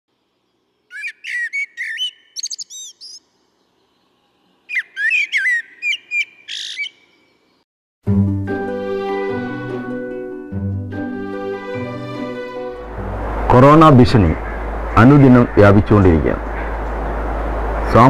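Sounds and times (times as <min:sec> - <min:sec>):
songbird singing: 0:00.1 - 0:07.6, 0:12.7 - 0:17.7
music: 0:08.0 - 0:13.2.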